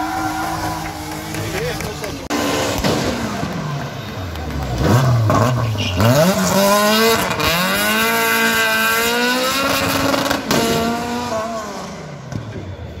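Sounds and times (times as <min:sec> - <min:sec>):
car engine revving hard: 0:04.6 - 0:12.1.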